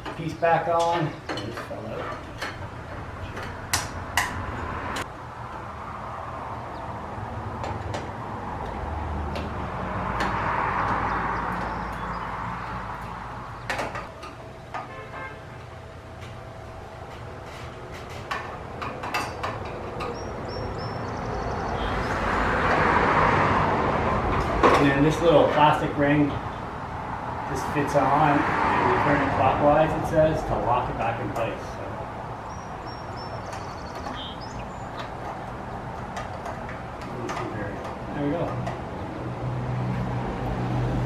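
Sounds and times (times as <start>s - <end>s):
fan parts clicking and knocking: 0.0s - 5.7s, 7.4s - 21.0s, 22.5s - 23.6s, 24.2s - 26.2s, 29.4s - 32.3s, 33.1s - 40.6s.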